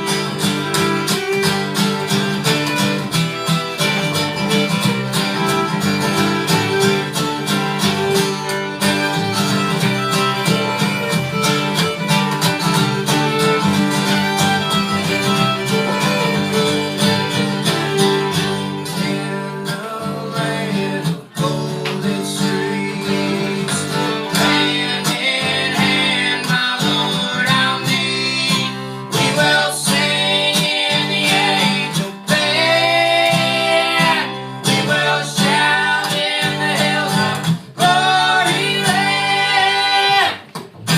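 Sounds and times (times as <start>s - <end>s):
fiddle: 0.0s - 40.9s
plucked guitar: 0.0s - 40.9s
person singing: 18.3s - 40.5s.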